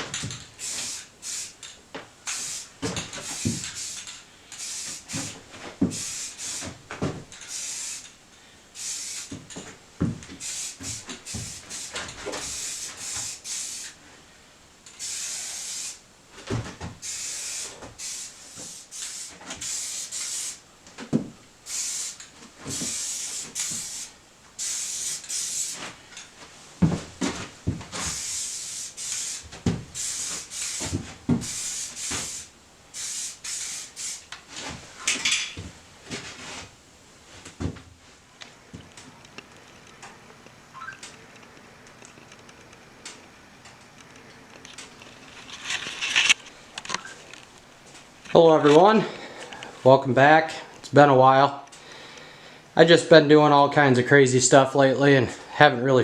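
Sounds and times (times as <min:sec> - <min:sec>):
spray paint can hissing: 0:00.3 - 0:06.8, 0:07.4 - 0:08.2, 0:08.8 - 0:09.4, 0:10.4 - 0:14.0, 0:14.9 - 0:16.0, 0:17.0 - 0:20.6, 0:21.7 - 0:25.9, 0:28.0 - 0:34.3.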